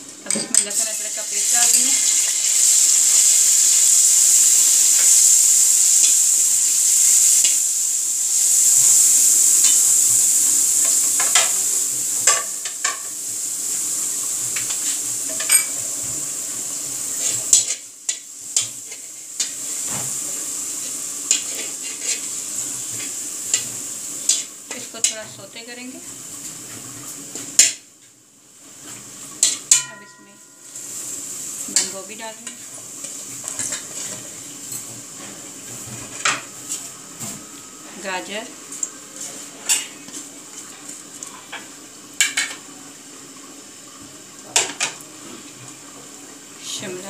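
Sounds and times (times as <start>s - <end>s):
paste sizzling in hot oil: 0.6s - 27.9s, 28.5s - 47.0s
metal spatula scraping wok: 21.5s - 22.3s.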